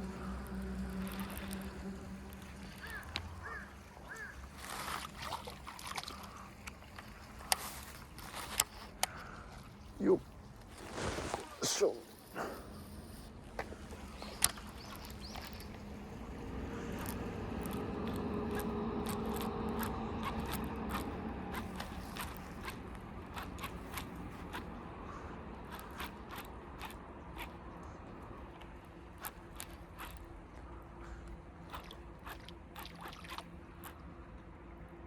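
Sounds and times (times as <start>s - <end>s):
fishing reel clicking: 0.0s - 9.2s, 13.9s - 24.8s, 25.6s - 27.6s, 29.2s - 30.3s
low hum: 0.0s - 35.0s.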